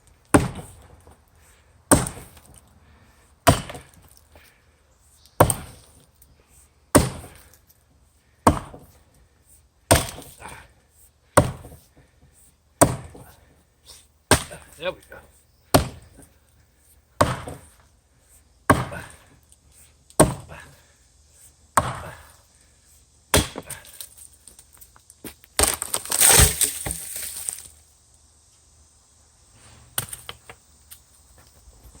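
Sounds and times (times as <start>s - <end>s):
axe chopping tree trunk: 0.3s - 0.9s, 1.9s - 2.6s, 3.4s - 4.1s, 5.4s - 6.0s, 6.9s - 7.5s, 8.4s - 8.9s, 9.9s - 10.6s, 11.4s - 11.8s, 12.8s - 13.3s, 14.3s - 14.8s, 15.7s - 16.3s, 17.2s - 17.7s, 18.7s - 19.3s, 20.2s - 20.7s, 21.8s - 22.4s, 23.3s - 24.1s, 25.6s - 27.7s
wood crackling: 23.7s - 27.9s.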